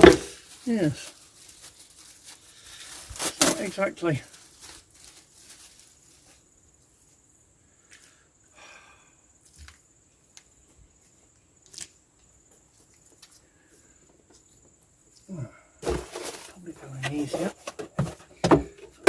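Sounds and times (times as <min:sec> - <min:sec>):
plastic parts scraping: 0:00.0 - 0:00.7, 0:03.1 - 0:03.8, 0:15.8 - 0:19.0.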